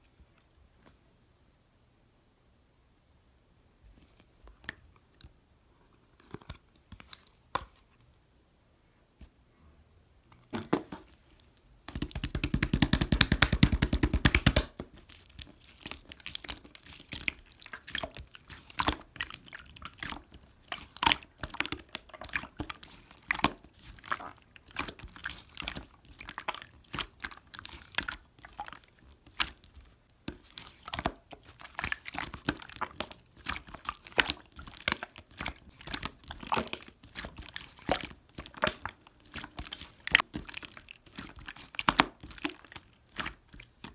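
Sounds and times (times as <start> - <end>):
slime squishing: 10.8 - 43.9.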